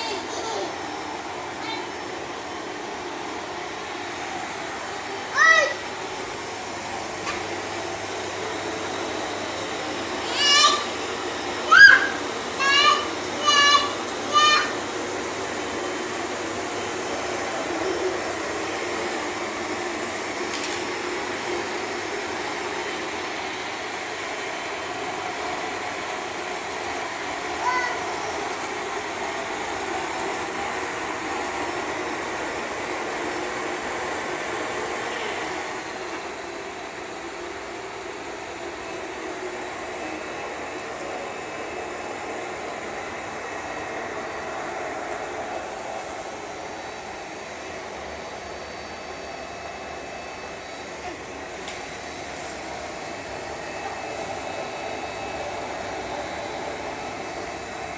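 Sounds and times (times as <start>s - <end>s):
vacuum cleaner running: 0.0s - 57.9s.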